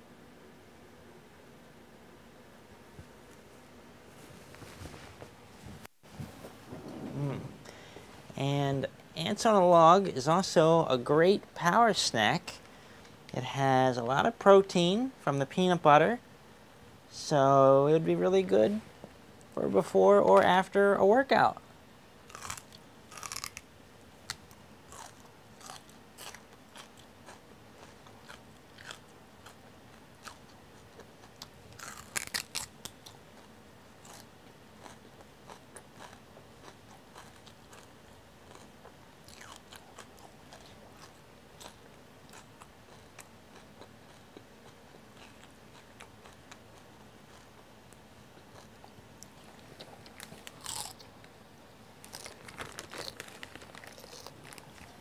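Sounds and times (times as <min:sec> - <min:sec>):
crunchy chewing of celery: 0:22.2 - 0:51.4, 0:52.0 - 0:55.0
plastic bag rustling: 0:52.0 - 0:55.0.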